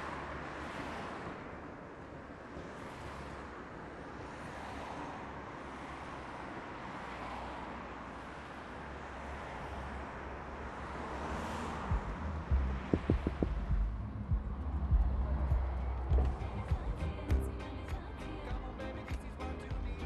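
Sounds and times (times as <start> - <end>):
vehicles passing on road: 0.0 - 20.0
low thumps: 11.8 - 17.4.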